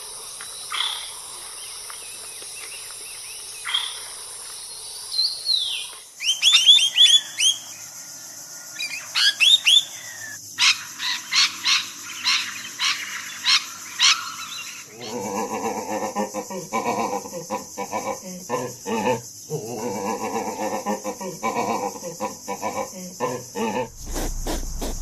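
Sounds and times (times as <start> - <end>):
low rough sound: 23.9 - 25.0.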